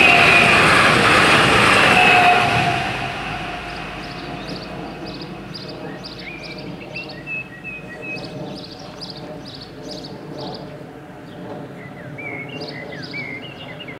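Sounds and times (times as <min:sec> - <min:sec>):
low background rumble: 0:00.0 - 0:08.8.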